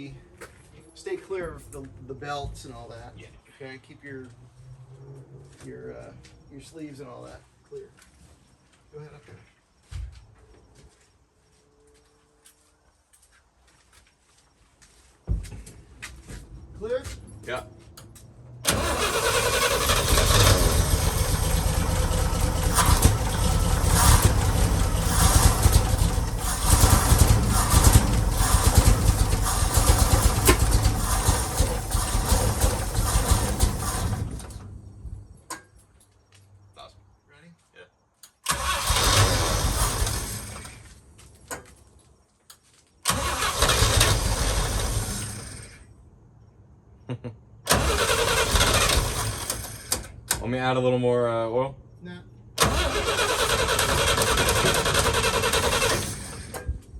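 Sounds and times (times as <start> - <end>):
engine cranking and running unevenly: 18.6 - 34.6, 38.5 - 40.8, 43.1 - 45.8, 47.7 - 50.4, 52.6 - 56.8.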